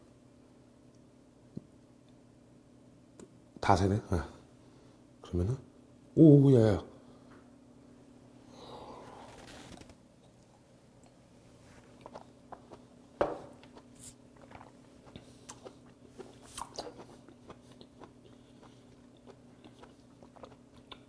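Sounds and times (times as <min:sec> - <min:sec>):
faint hum: 0:00.0 - 0:21.0
wet mouth chewing clicks: 0:13.6 - 0:21.0.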